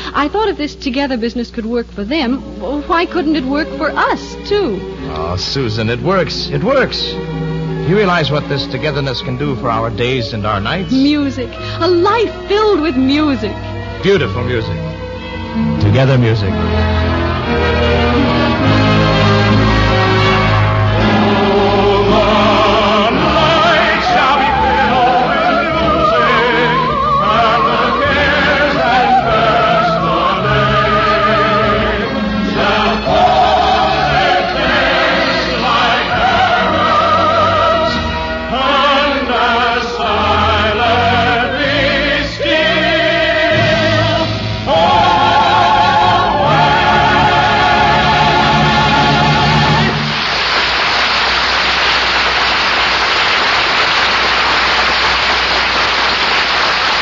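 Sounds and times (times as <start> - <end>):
sustained orchestral chords: 1.9 - 50.4
choir singing with vibrato: 17.2 - 50.4.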